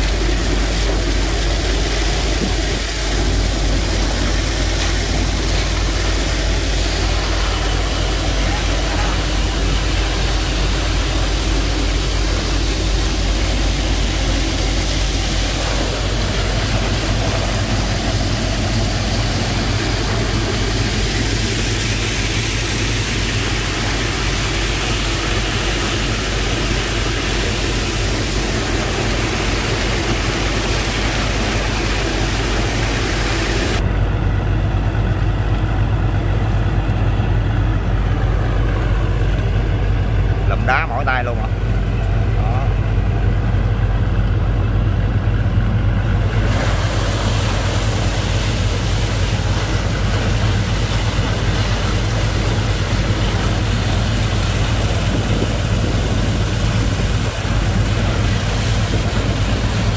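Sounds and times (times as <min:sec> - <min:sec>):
rushing hiss: 0:00.0 - 0:33.8, 0:46.2 - 0:59.9
pump engine humming: 0:00.0 - 0:59.9.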